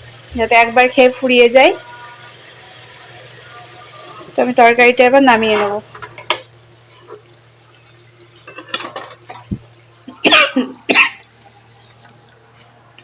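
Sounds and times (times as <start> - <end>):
person coughing loudly: 10.1 - 11.2.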